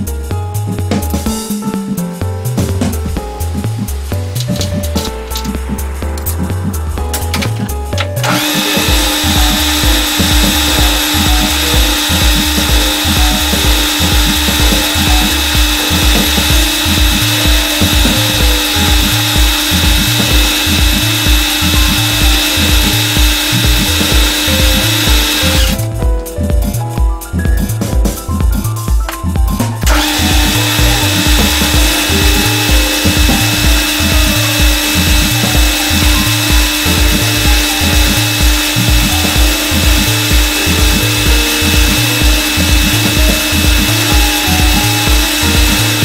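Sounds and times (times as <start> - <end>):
background music with steady beat: 0.0 - 46.0
electric spindle drilling metal: 8.2 - 25.9, 29.9 - 46.0.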